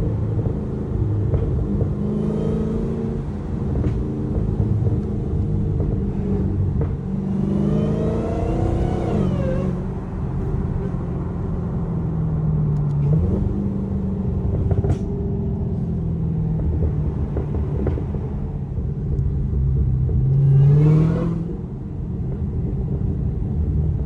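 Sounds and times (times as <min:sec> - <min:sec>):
supercharger whine: 0:00.0 - 0:15.0
car engine running: 0:00.0 - 0:23.6.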